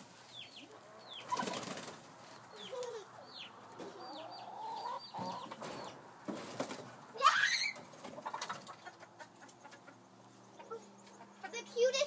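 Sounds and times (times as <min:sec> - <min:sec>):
chicks peeping: 0:00.2 - 0:07.0, 0:07.7 - 0:12.0
hen clucking: 0:00.3 - 0:01.8, 0:02.4 - 0:06.2, 0:07.7 - 0:12.0.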